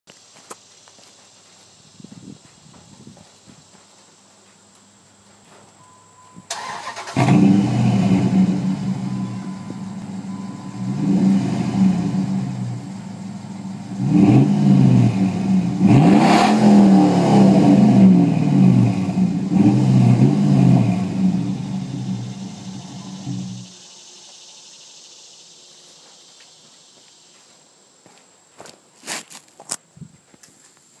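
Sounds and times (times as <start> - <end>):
engine starting: 6.5 - 8.5
engine idling and revving: 6.5 - 23.7.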